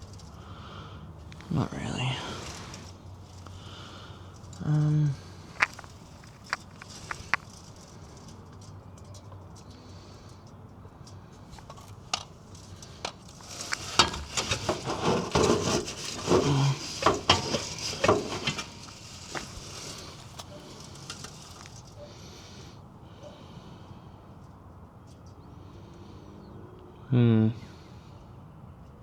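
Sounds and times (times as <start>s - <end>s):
metal clanking and scraping: 5.4s - 8.4s, 11.6s - 22.0s.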